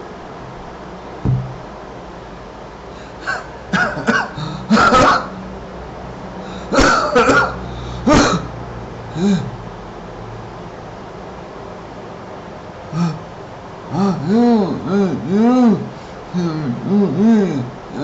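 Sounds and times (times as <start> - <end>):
steady low hum: 0.0 - 7.8
person coughing: 3.3 - 5.3, 6.7 - 8.5.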